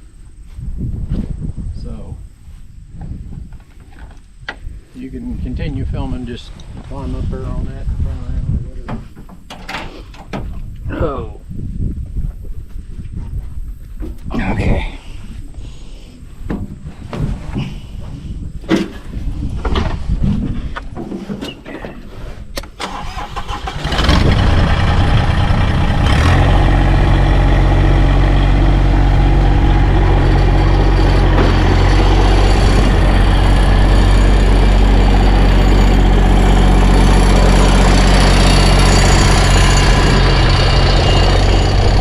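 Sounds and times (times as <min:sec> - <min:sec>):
tractor engine starting and running: 0:18.6 - 0:42.0.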